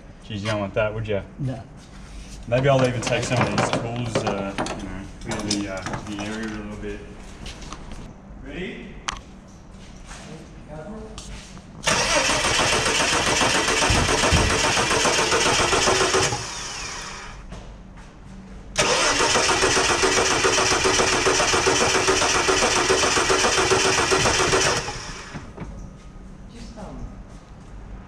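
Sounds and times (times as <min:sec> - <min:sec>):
starter motor cranking: 0:11.8 - 0:17.4, 0:18.8 - 0:25.6.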